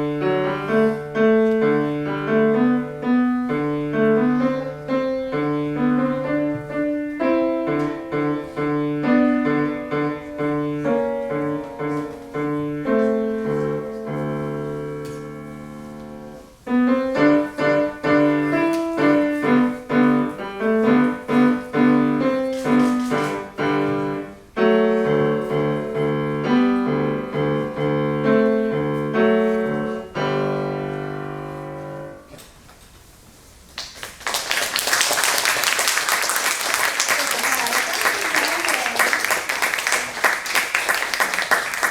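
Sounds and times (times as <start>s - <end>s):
solo piano piece: 0.0s - 32.4s
applause: 33.8s - 41.9s.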